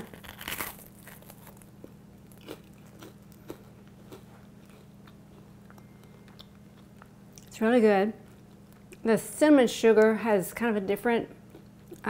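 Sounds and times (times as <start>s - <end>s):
person chewing crunchy food: 0.0s - 7.5s
low steady hum: 0.0s - 12.0s.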